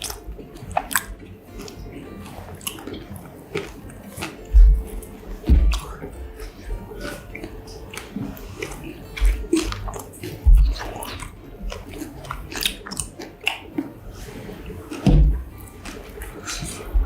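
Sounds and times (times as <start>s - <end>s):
mouth clicks and smacks: 0.0s - 14.0s, 14.6s - 17.0s
biting and chewing food: 0.0s - 17.0s
dull thumps: 3.6s - 7.3s, 9.2s - 12.0s, 14.8s - 17.0s.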